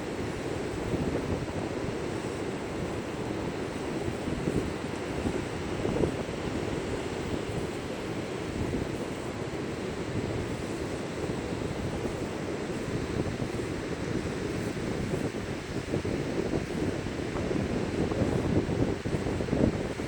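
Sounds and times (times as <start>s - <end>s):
strong wind buffeting microphone: 0.0s - 20.0s.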